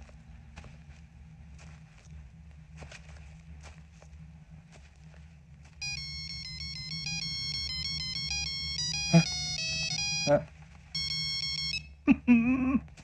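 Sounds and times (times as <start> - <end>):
phone ringtone melody: 5.8 - 11.9.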